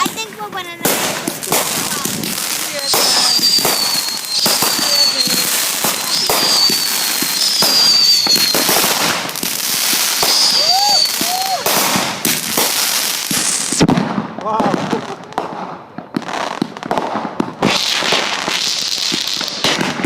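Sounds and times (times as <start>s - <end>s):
fireworks whistles: 0.0s - 15.2s, 16.1s - 20.0s
fireworks bangs: 0.0s - 20.0s
fireworks crackling: 0.0s - 20.0s.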